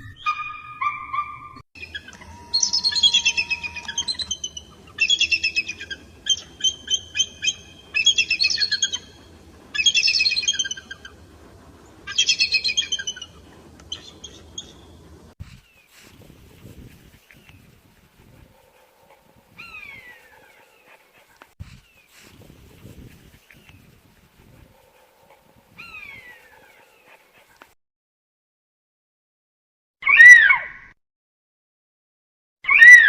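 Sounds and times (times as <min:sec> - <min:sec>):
eagle chittering calls: 0:01.8 - 0:15.3.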